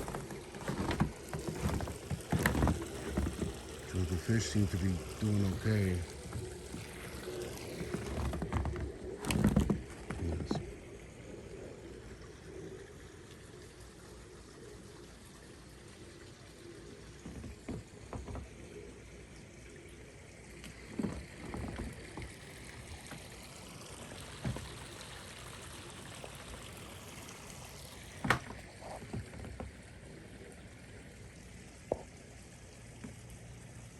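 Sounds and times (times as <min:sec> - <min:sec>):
short knocks and thumps: 0:00.0 - 0:10.6
water trickling: 0:00.0 - 0:33.9.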